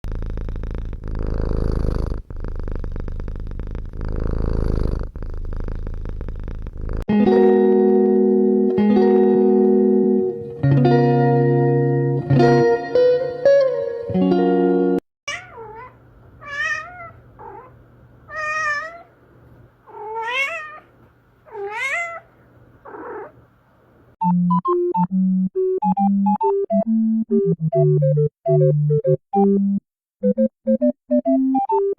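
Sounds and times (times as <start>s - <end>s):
cat purring: 0.0s - 7.1s, 15.3s - 24.1s
cat meowing: 15.3s - 19.1s, 19.9s - 22.3s, 22.9s - 23.4s.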